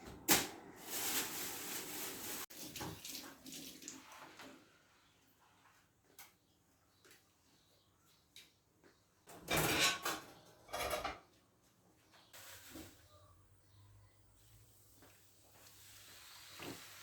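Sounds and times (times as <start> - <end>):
kitchen items clattering: 0.0 - 3.3, 9.3 - 11.3.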